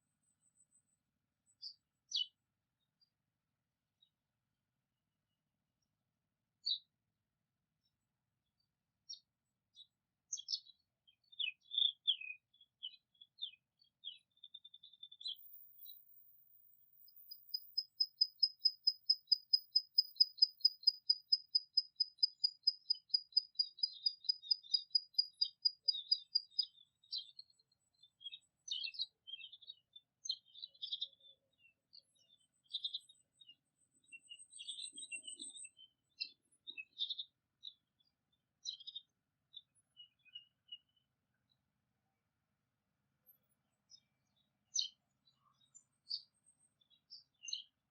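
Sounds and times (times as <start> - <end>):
songbirds chirping: 0.0 - 42.2, 43.2 - 47.9.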